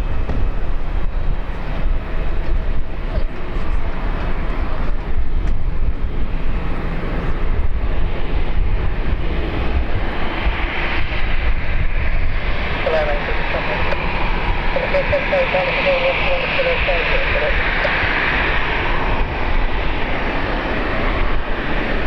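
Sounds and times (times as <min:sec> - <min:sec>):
airliner engines rumbling: 0:00.0 - 0:22.0.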